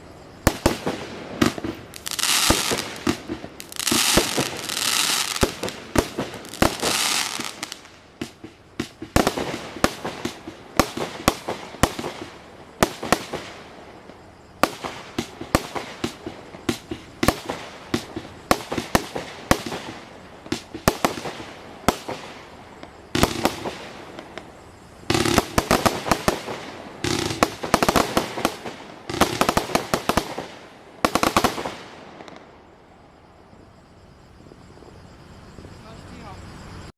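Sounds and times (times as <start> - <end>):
firework bangs and crackling: 0.0 - 32.7.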